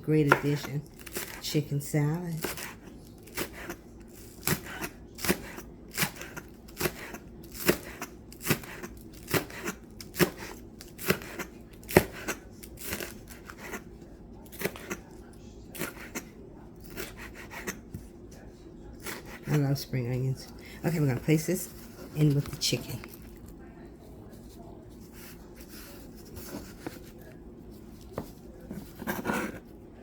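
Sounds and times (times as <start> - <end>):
knife cutting spring onions: 2.3 - 13.9.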